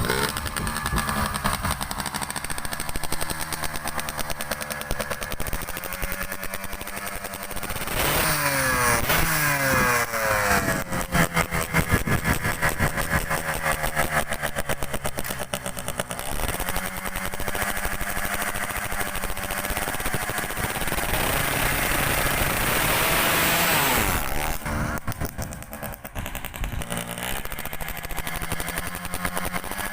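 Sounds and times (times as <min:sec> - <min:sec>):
two-stroke engine revving: 0:00.0 - 0:29.9.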